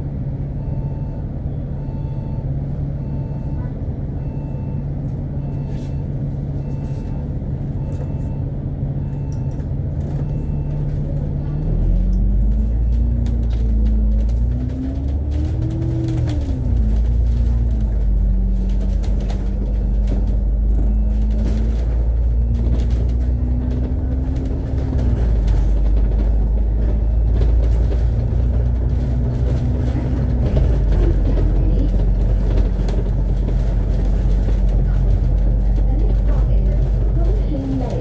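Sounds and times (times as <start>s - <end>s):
bus engine rumble: 0.0s - 38.0s
bus whine: 0.0s - 38.0s.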